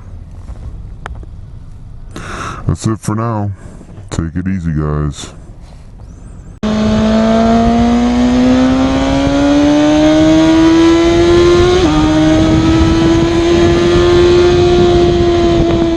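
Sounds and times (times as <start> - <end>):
engine accelerating: 6.6 - 15.9.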